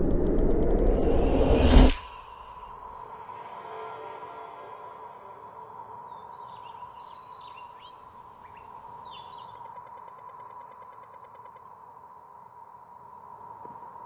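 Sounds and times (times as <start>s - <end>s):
small birds chirping: 6.0s - 11.9s.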